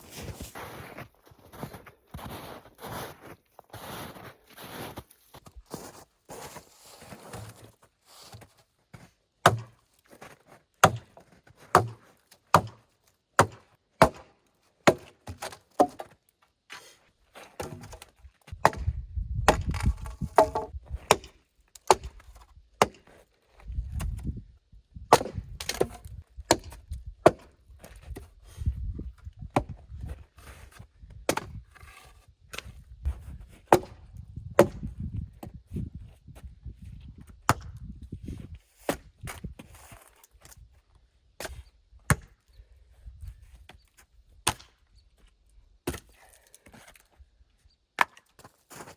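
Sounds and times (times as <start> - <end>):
hatchet chopping wood: 9.4 - 9.8, 10.8 - 12.8, 13.4 - 16.2, 18.6 - 22.2, 22.8 - 23.1, 25.1 - 27.5, 31.3 - 31.5, 33.7 - 34.0, 34.6 - 34.9, 42.1 - 42.3, 44.4 - 44.7, 45.8 - 46.1.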